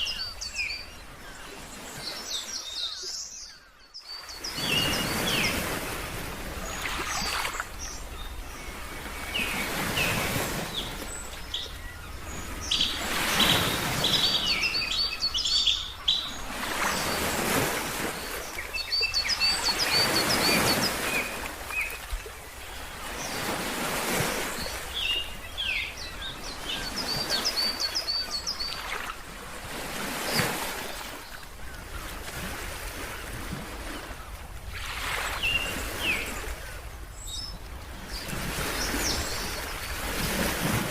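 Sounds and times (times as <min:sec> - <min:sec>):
birds chirping: 0:00.0 - 0:05.9, 0:06.6 - 0:29.2
ocean surf washing: 0:04.3 - 0:31.3, 0:32.2 - 0:40.9.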